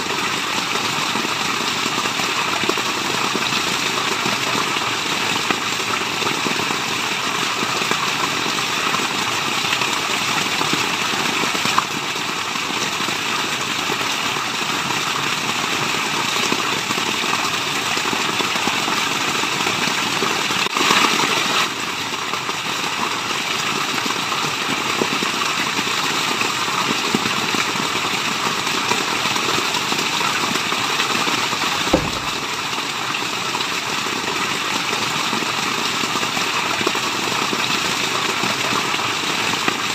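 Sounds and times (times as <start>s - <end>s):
waterfall rushing: 31.8s - 33.0s
low thump: 31.9s - 32.6s.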